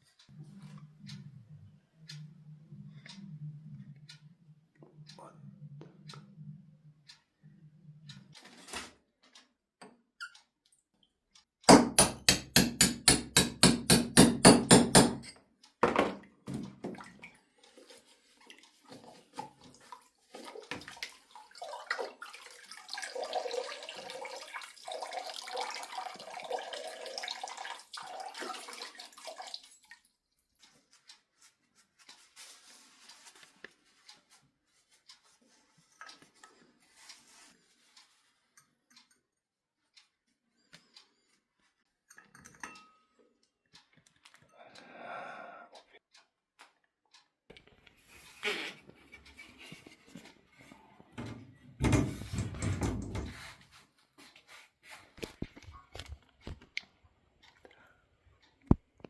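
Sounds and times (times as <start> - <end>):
fast sharp knocks: 11.7 - 15.2
running or splashing water: 16.6 - 30.2.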